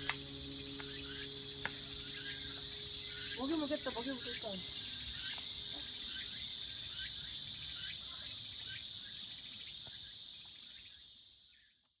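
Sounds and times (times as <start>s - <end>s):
pulsing insect note: 0.0s - 7.3s
insect chorus drone: 0.0s - 12.0s.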